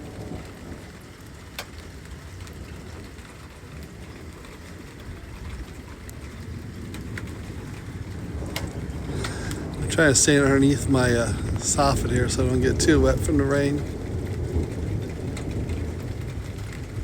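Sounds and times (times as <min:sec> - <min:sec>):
rain falling: 0:00.0 - 0:17.0
low rumble: 0:06.5 - 0:17.0
drops ticking close by: 0:06.8 - 0:17.0.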